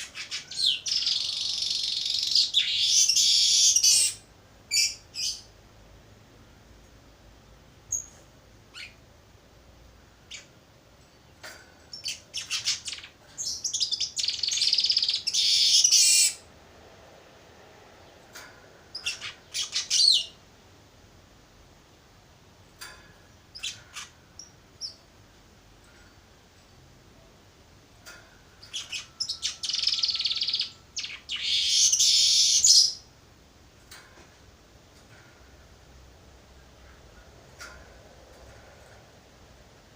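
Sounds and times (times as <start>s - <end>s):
weaver bird chirping and chattering: 0.0s - 5.5s, 11.9s - 16.4s, 18.9s - 20.4s, 28.6s - 33.0s.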